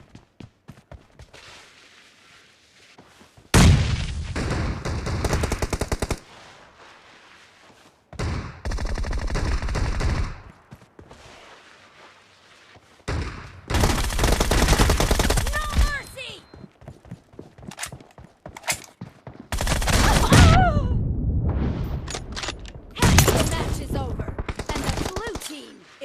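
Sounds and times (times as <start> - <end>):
video game automatic gunfire: 13.7 - 15.7, 19.5 - 20.3.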